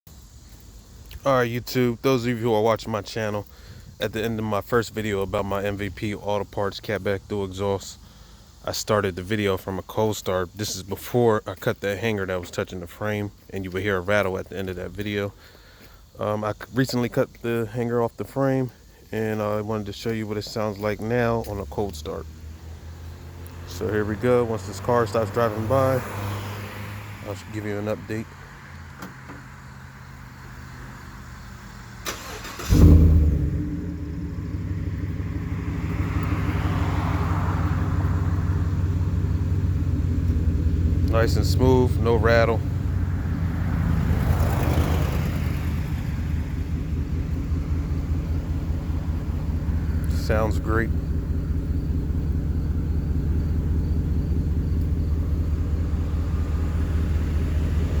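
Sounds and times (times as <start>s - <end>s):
truck engine idling: 32.1s - 58.0s.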